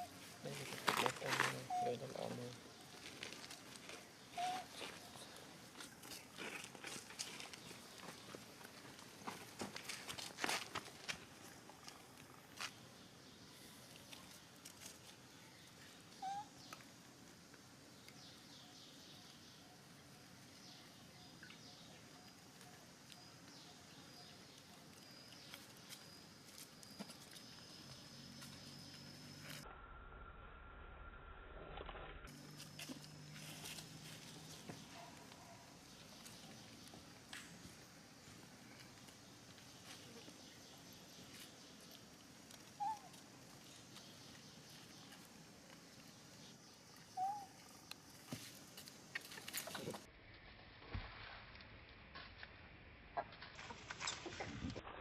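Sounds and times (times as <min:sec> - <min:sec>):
baby monkey coo calls: 0:01.6 - 0:02.1, 0:04.3 - 0:05.2, 0:16.1 - 0:16.7, 0:42.8 - 0:43.2, 0:47.1 - 0:47.6.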